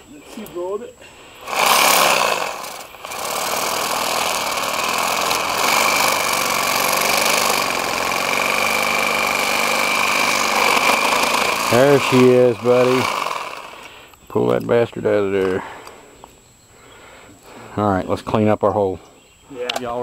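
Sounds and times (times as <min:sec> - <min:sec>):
electric power tool motor: 0:01.4 - 0:14.0.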